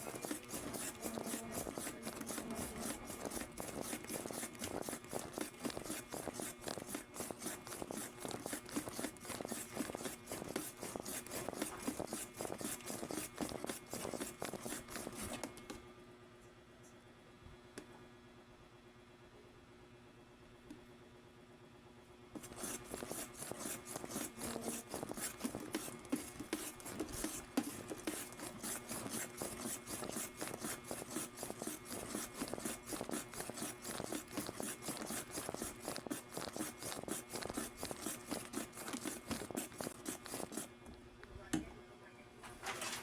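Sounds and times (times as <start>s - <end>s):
rhythmic scraping and rubbing: 0.0s - 15.4s, 22.4s - 40.7s.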